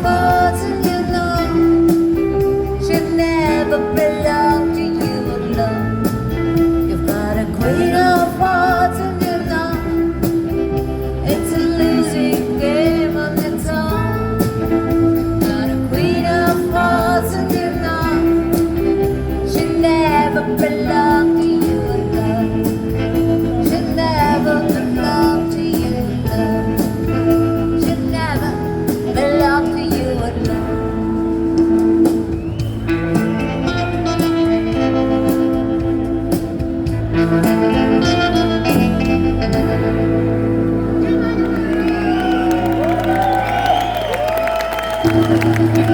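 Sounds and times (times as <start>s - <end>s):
rockabilly band playing live: 0.0s - 45.9s.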